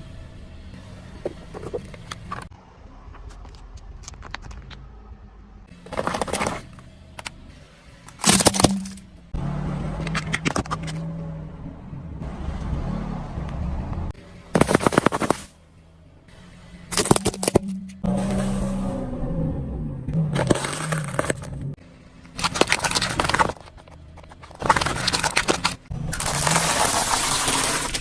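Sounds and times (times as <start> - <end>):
car engine running: 0.0 - 28.0
tyres crushing brittle objects: 8.2 - 9.0, 14.6 - 15.5, 16.9 - 18.0, 20.3 - 21.6, 22.3 - 28.0.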